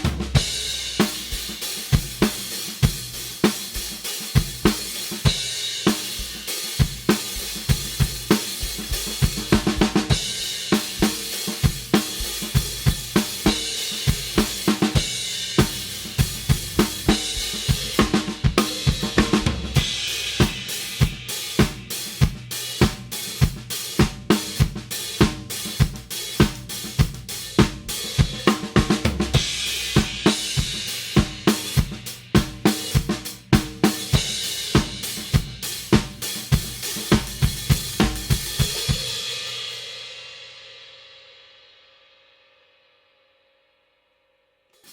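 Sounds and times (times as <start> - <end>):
hi-hat wash: 0.0 - 32.9
snare drum: 0.0 - 39.2.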